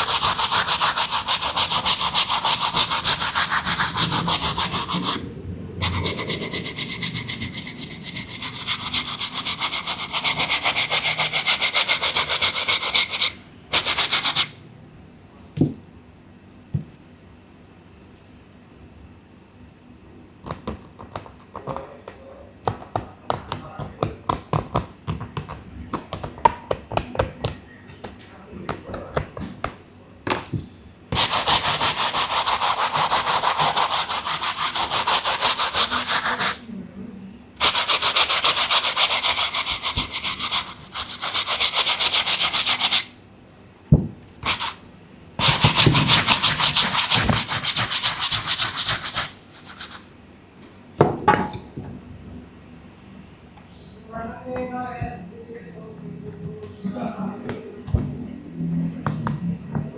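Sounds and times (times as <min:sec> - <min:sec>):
brush scrubbing a sneaker: 0:00.0 - 0:14.5, 0:31.2 - 0:36.6, 0:37.6 - 0:43.1, 0:44.4 - 0:44.8, 0:45.4 - 0:50.0.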